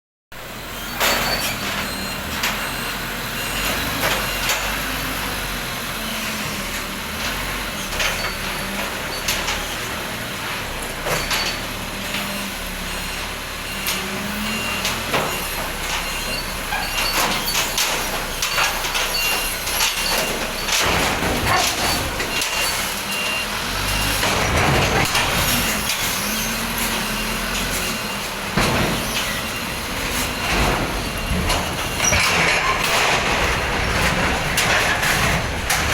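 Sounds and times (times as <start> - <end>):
forklift engine running: 0.4 - 35.9
clanks and knocks: 14.8 - 23.2, 28.5 - 35.9
reversing beeper: 21.8 - 32.7.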